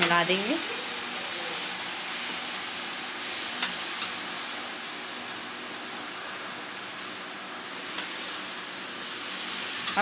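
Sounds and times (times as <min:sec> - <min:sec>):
masala sizzling in pan: 0:00.0 - 0:10.0
spatula clicking on pan: 0:03.6 - 0:04.2.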